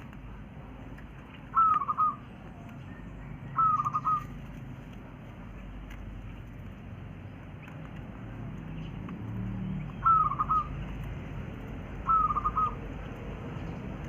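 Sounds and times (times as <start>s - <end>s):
quail calling: 1.5s - 4.4s, 9.9s - 10.8s, 12.0s - 12.9s.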